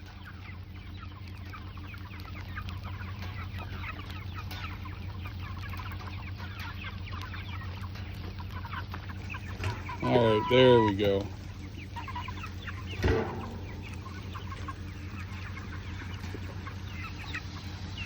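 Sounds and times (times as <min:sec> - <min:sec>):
chickens clucking and peeping: 0:00.0 - 0:18.0
steady low hum: 0:11.2 - 0:18.0.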